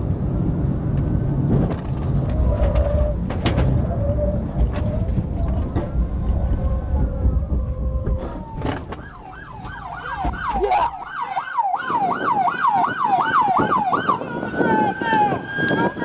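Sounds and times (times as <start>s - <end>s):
low vehicle rumble: 0.0s - 16.0s
police siren yelping: 3.9s - 16.0s.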